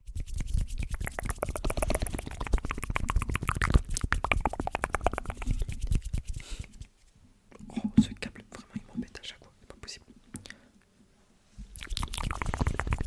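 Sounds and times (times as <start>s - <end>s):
lip smacks: 0.4s - 6.9s, 11.7s - 13.0s
tongue clicks: 0.8s - 5.8s, 11.7s - 13.0s.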